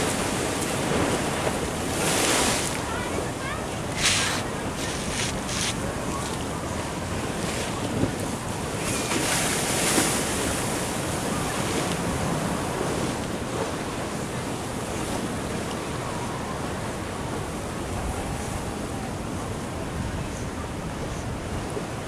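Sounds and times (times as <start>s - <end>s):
ocean surf washing in: 0.0s - 6.8s.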